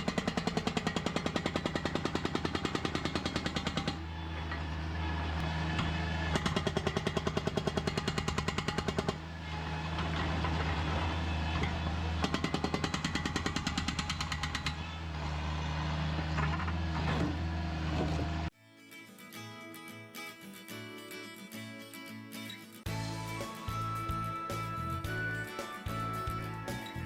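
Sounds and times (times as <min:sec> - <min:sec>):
breaker hammering concrete: 0:00.0 - 0:04.1, 0:12.0 - 0:14.9.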